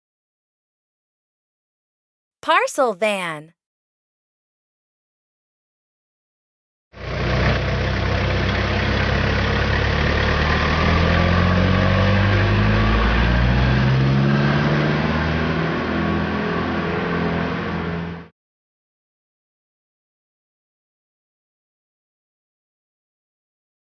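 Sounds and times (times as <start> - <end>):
van engine running: 7.0 - 10.4.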